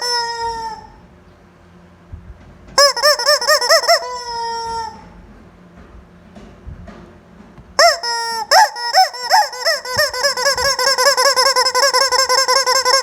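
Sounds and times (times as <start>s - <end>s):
toy chicken squawking: 0.0s - 1.0s, 2.8s - 5.1s, 7.8s - 13.0s.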